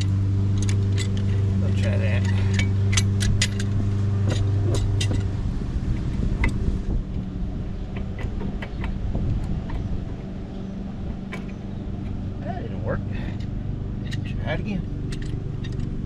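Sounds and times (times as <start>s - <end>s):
steady low hum: 0.0s - 16.0s
hand tools clinking on metal: 0.5s - 5.3s.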